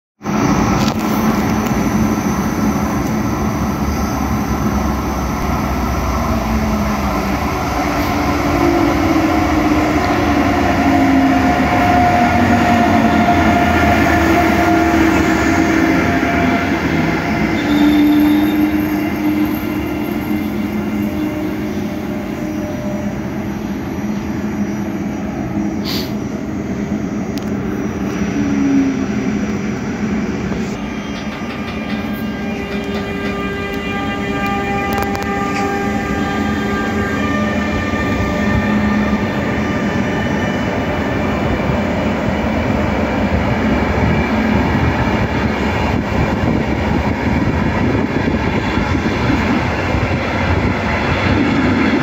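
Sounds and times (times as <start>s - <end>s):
train coaches rumbling over rails: 0.2s - 52.0s
wheel squeal: 17.6s - 21.5s.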